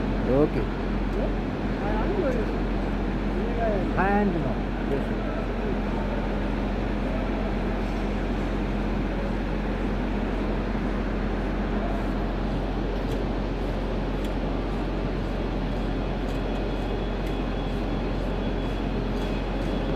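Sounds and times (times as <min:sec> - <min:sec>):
constant low hum: 0:00.0 - 0:19.9.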